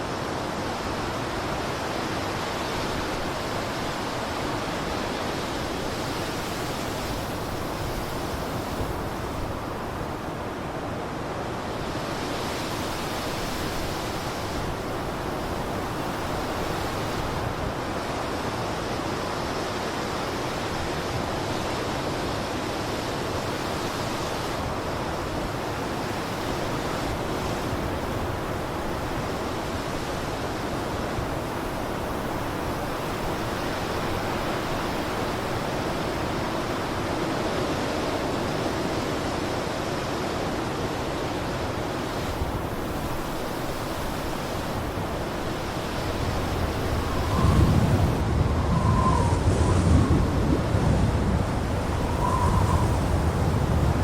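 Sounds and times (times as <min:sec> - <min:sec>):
blizzard wind rushing: 0:24.6 - 0:54.0.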